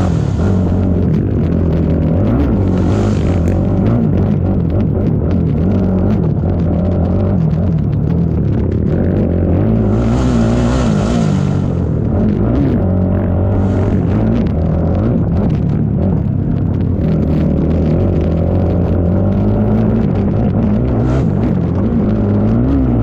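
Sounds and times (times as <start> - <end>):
hissing rush: 0.0 - 1.5, 2.3 - 4.2, 9.7 - 12.2, 13.5 - 14.3
atv engine revving: 0.0 - 23.0.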